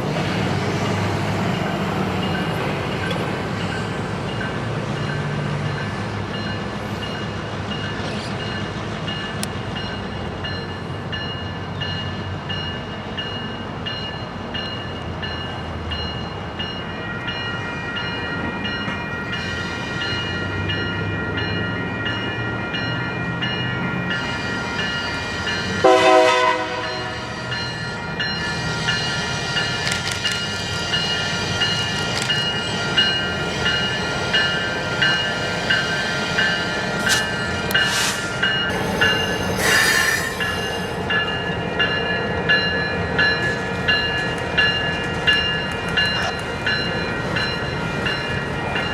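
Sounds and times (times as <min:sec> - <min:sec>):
freight train rolling by: 0:00.0 - 0:48.9
train horn blast: 0:24.4 - 0:33.6.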